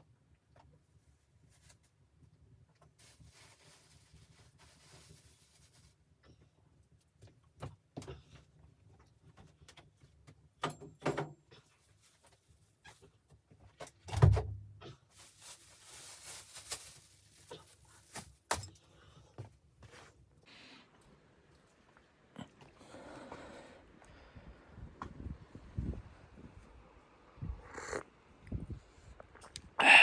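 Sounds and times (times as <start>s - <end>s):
rustling: 1.1s - 2.0s, 2.8s - 6.1s, 11.6s - 13.8s, 14.9s - 18.9s.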